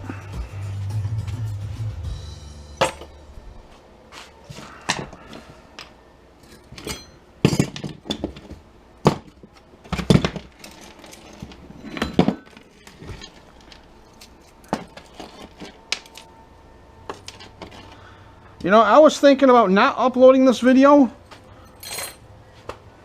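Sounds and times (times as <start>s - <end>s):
metal parts and tools clinking: 4.9s - 8.6s, 9.8s - 16.3s, 21.6s - 22.3s.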